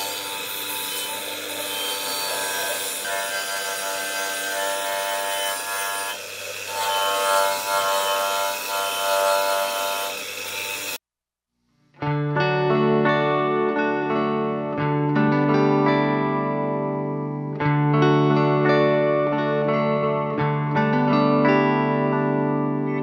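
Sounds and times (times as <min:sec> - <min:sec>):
rasping power tool: 0:00.0 - 0:11.0
distorted electric guitar music: 0:11.9 - 0:23.0.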